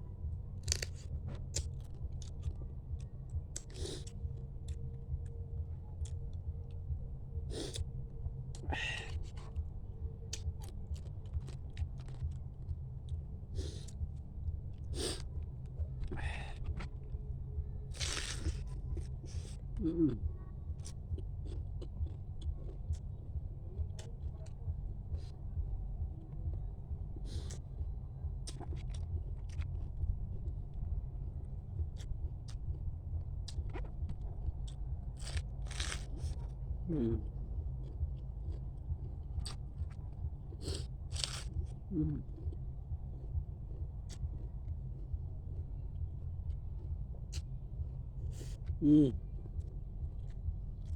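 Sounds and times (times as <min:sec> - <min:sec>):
low hum: 0:00.0 - 0:50.9
steady low rumble: 0:00.0 - 0:50.9
sucking and chewing: 0:00.5 - 0:05.4, 0:06.0 - 0:17.2, 0:17.8 - 0:25.3, 0:27.2 - 0:50.9
crab shell clicking and cracking: 0:00.6 - 0:01.0, 0:41.2 - 0:41.5
crab shell cracking: 0:00.6 - 0:01.0
chewing: 0:10.3 - 0:12.4, 0:17.9 - 0:20.2, 0:20.8 - 0:23.1, 0:33.4 - 0:45.6, 0:46.5 - 0:50.9.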